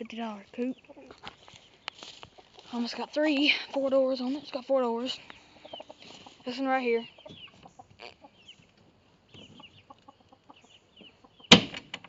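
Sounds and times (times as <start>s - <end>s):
chickens clucking and chirping: 0.0s - 12.0s
sharp knock: 11.5s - 12.0s.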